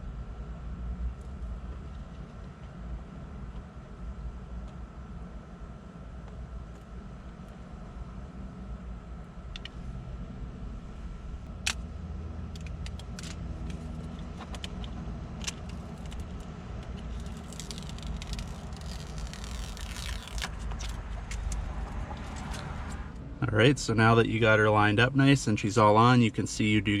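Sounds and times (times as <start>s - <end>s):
low cabin hum: 0.0s - 27.0s
plastic crinkling: 15.7s - 21.6s.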